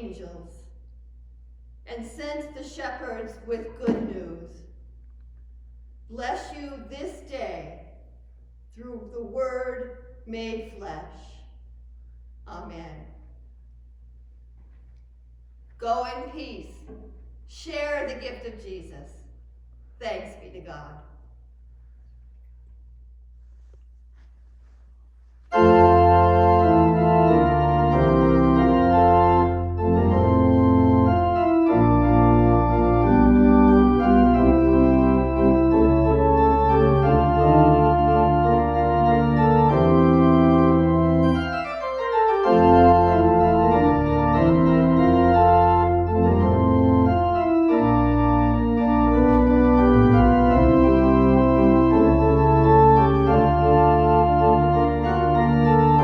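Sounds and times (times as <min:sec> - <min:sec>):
church organ chords: 0:25.5 - 0:56.0.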